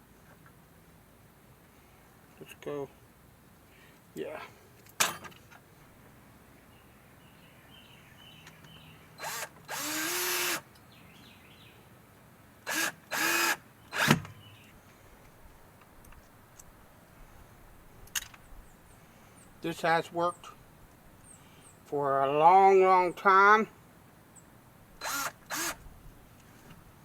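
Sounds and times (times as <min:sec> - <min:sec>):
electric drill whining: 0:09.2 - 0:10.6, 0:12.7 - 0:14.2, 0:25.0 - 0:25.8.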